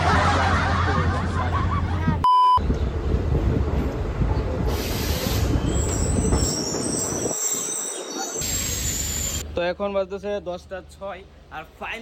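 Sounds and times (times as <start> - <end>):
passenger train rumbling: 0.0 - 9.6
short electronic bleep: 2.2 - 2.6
train hiss: 4.7 - 5.9, 8.4 - 9.4.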